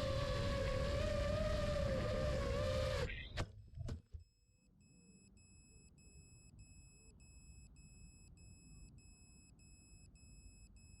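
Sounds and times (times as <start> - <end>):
faint electronic beeping: 4.2 - 11.0.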